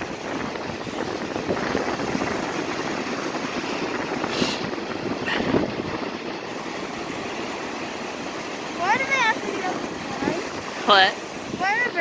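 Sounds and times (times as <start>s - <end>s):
surf: 0.0s - 12.0s
wind buffeting microphone: 0.0s - 12.0s
short hiss: 4.3s - 4.6s.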